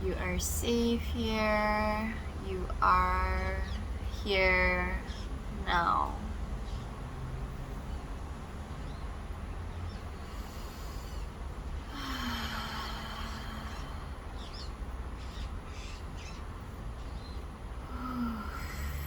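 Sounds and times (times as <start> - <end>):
road traffic rumble: 0.0 - 19.0
person breathing out: 11.9 - 14.1.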